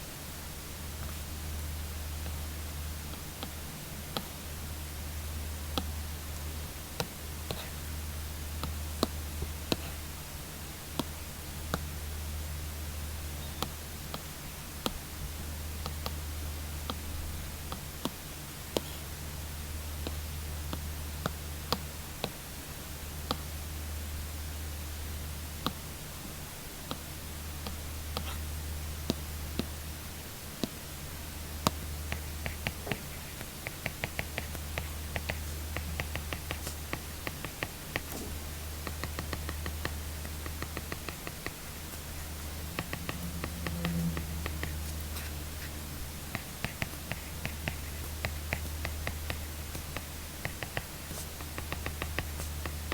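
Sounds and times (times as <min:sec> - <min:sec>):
steady low hum: 0:00.0 - 0:52.9
stylus tapping on tablet screen: 0:31.6 - 0:41.6, 0:42.7 - 0:44.8, 0:46.3 - 0:52.9.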